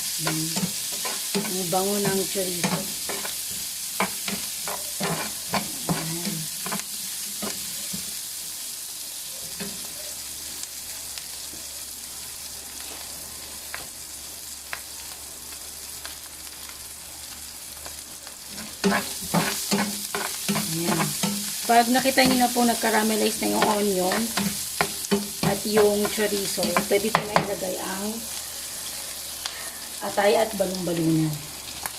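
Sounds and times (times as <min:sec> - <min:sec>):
onions sizzling in a frying pan: 0:00.0 - 0:31.9
utensil knocking and scraping pan: 0:00.6 - 0:06.8, 0:18.6 - 0:21.5, 0:22.1 - 0:22.6, 0:23.2 - 0:27.6.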